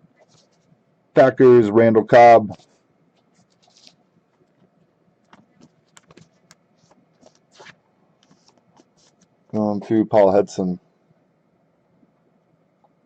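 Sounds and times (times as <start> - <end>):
trading cards rustling and clicking: 3.2 - 9.3.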